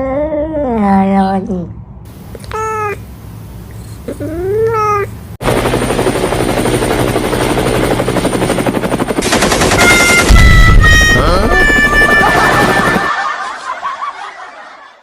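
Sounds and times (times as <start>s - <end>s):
loud fast rattling: 6.5s - 13.2s.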